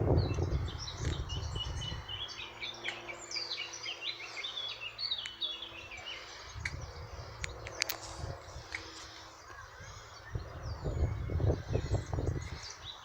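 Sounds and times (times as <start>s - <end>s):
low rumble: 0.0s - 2.2s
songbird twittering: 0.1s - 13.0s.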